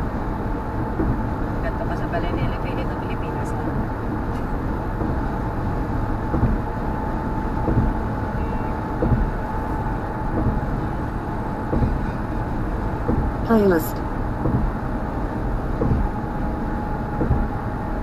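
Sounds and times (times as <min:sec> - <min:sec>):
tyre and road noise: 0:00.0 - 0:18.0
light thumps: 0:06.3 - 0:06.7, 0:07.6 - 0:08.0, 0:09.0 - 0:09.5, 0:10.3 - 0:10.8, 0:11.7 - 0:12.3, 0:14.4 - 0:14.8, 0:15.8 - 0:16.2, 0:17.1 - 0:17.5.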